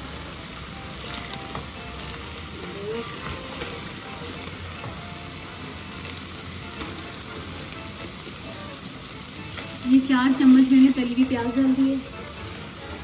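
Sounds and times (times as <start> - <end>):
food sizzling in hot oil: 0.0 - 13.0
spatula stirring: 1.0 - 5.0.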